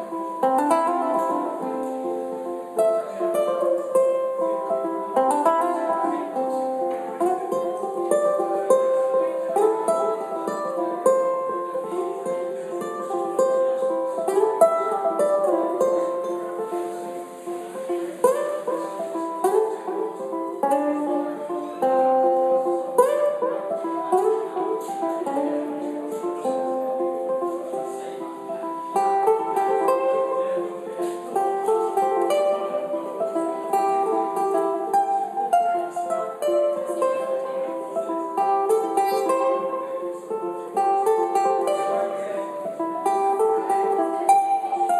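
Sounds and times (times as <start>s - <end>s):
looped ukulele melody and chords: 0.0s - 44.9s.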